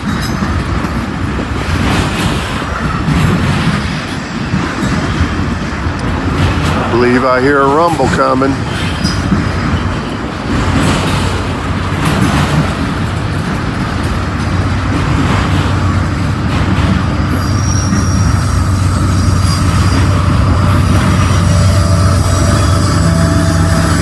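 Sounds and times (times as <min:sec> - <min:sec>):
freight train cars rolling past: 0:00.0 - 0:24.0
high-pitched wheel squeal: 0:17.3 - 0:24.0.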